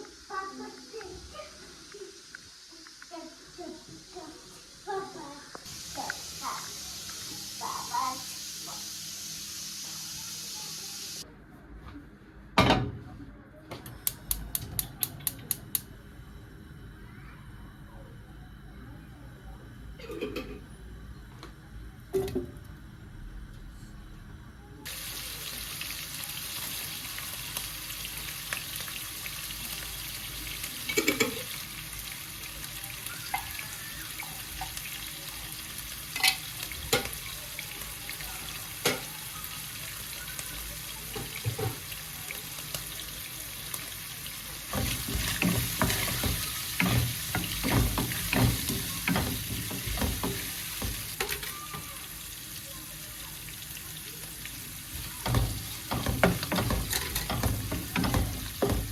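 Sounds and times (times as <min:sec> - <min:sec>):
food sizzling in a frying pan: 0:00.0 - 0:11.2, 0:24.8 - 0:58.9.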